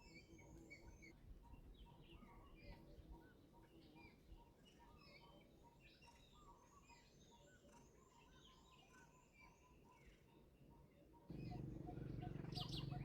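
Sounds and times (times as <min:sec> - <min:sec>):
birds chirping: 0:11.3 - 0:13.0.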